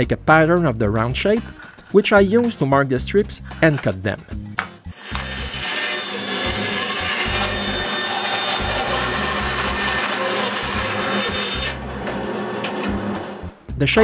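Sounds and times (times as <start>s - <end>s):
power saw cutting wood: 4.9s - 13.6s.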